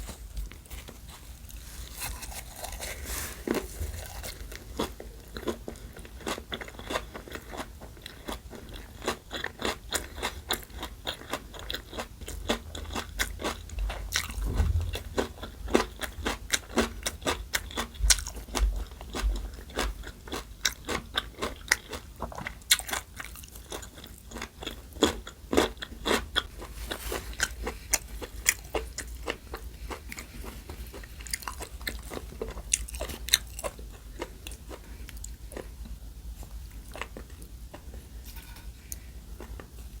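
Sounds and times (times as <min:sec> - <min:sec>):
person chewing crunchy food: 0:00.0 - 0:38.2
low thumps: 0:13.8 - 0:16.4.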